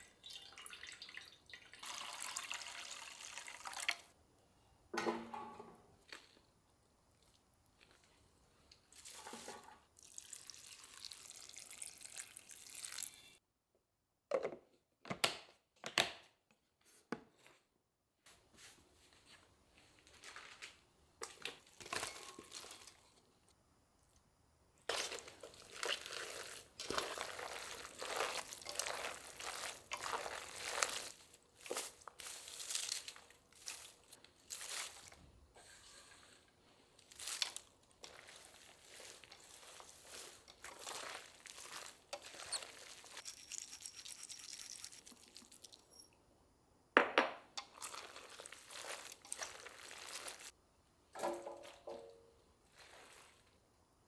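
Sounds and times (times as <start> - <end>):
water: 0.0 - 4.1, 9.9 - 13.2.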